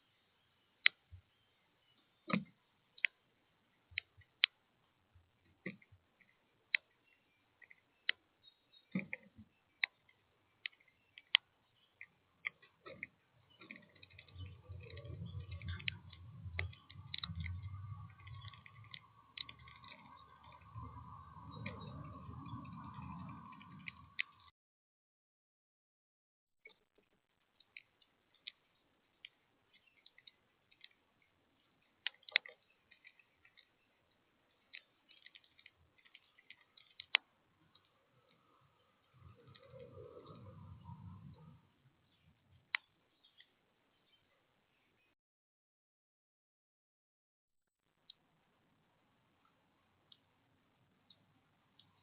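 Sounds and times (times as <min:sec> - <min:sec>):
birds clicking at feeder: 0:05.4 - 0:24.5, 0:27.5 - 0:43.6
low rumble: 0:14.5 - 0:24.5.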